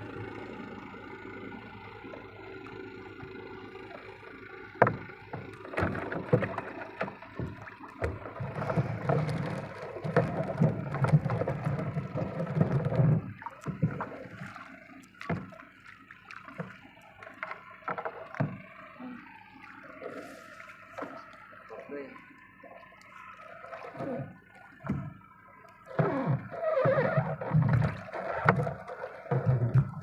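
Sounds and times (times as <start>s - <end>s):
water noise: 0.0s - 30.0s
knocks and clatter in a boat: 2.0s - 30.0s.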